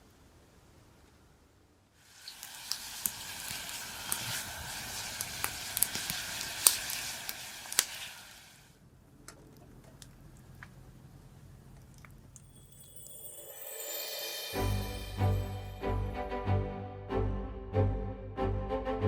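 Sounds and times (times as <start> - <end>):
food sizzling: 2.0 - 8.7, 12.4 - 15.8
campfire crackling pops: 2.2 - 8.3.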